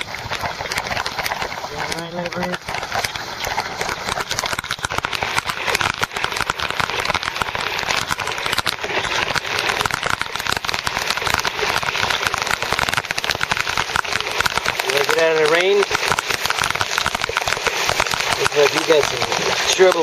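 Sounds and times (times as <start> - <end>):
heavy rain pelting: 0.0 - 20.0.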